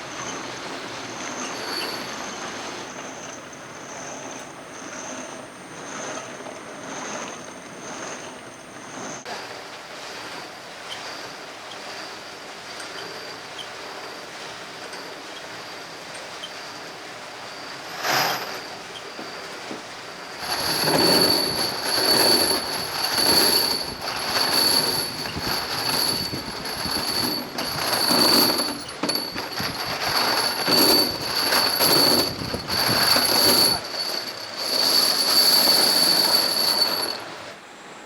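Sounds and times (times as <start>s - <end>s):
machine cutting steel: 20.3s - 37.2s.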